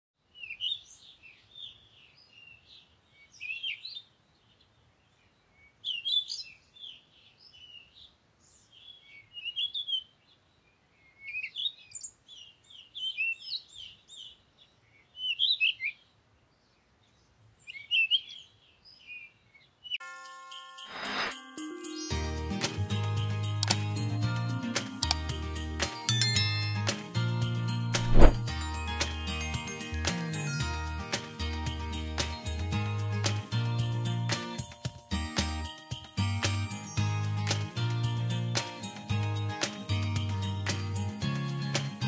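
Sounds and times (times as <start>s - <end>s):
songbirds chirping: 0.2s - 20.0s.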